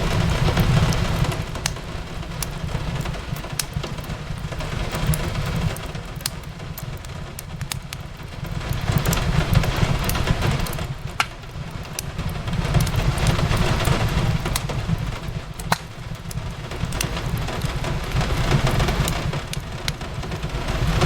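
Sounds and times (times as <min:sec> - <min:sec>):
steady rain: 0:00.0 - 0:21.0
wood fire crackling: 0:00.0 - 0:21.0.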